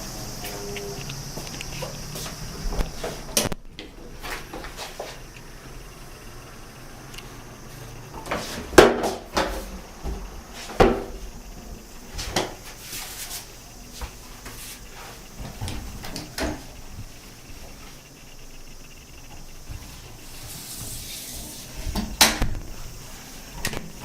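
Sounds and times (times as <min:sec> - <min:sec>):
cupboard doors knocking shut: 0:10.8 - 0:11.1.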